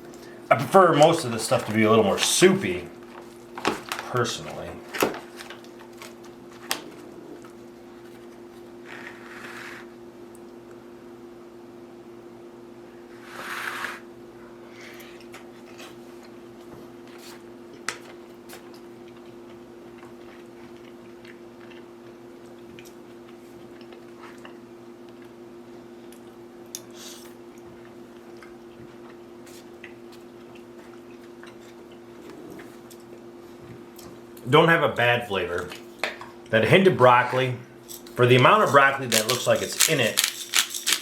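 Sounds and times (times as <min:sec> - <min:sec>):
steady low hum: 0:00.0 - 0:41.0
faint chewing: 0:17.1 - 0:25.4, 0:26.1 - 0:34.2.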